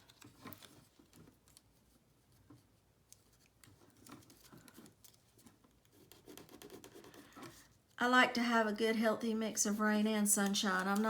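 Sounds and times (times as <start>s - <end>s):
paper rustling: 0.0s - 6.8s.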